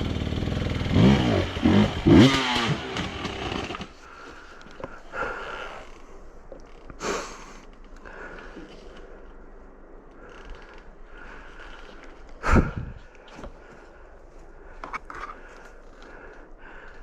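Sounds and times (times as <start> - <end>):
motorcycle engine revving: 0.0 - 4.0.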